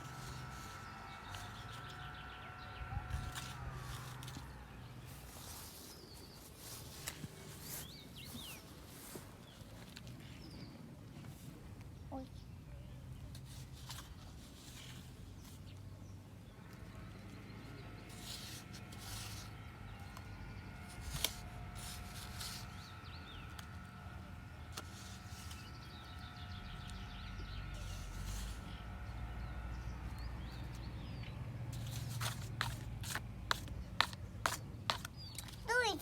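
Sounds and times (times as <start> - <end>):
faint steady whine: 0.0 - 5.8, 16.4 - 36.0
sand scraped into plastic mould: 24.7 - 29.2, 31.8 - 35.2.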